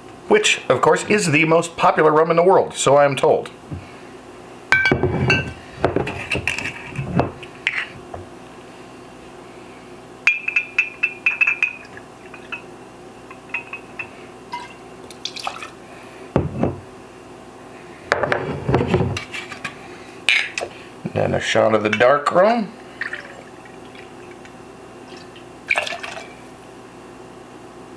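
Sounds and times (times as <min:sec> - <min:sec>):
glass clinking: 0:04.7 - 0:06.0, 0:10.3 - 0:12.7, 0:13.3 - 0:15.6
liquid pouring into a glass: 0:13.6 - 0:15.8, 0:22.8 - 0:24.5, 0:25.1 - 0:26.4
liquid splashing: 0:15.1 - 0:15.8, 0:25.1 - 0:26.4.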